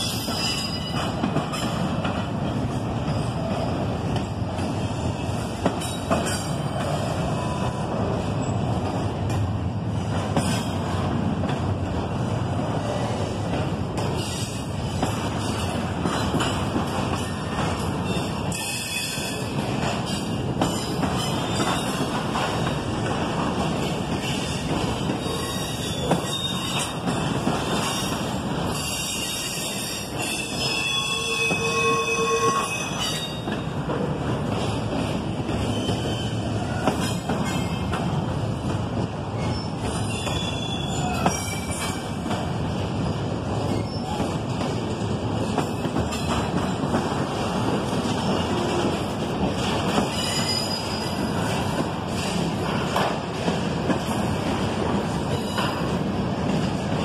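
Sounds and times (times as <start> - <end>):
train wheels rumbling on rails: 0.0 - 57.0
high-pitched wheel squeals: 28.8 - 33.5.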